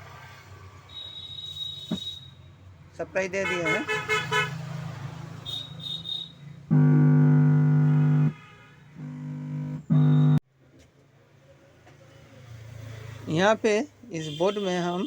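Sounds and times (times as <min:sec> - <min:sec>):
electrical hum from speaker: 0:06.7 - 0:08.3, 0:09.0 - 0:10.4.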